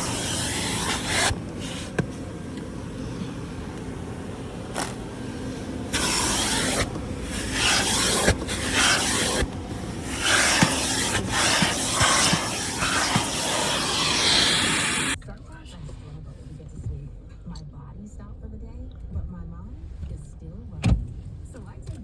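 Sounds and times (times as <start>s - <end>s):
water spray and brushes hissing: 0.0s - 15.2s.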